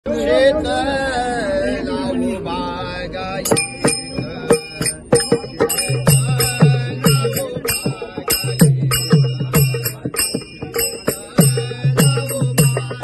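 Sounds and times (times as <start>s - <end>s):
hand cymbals striking: 3.4s - 13.0s.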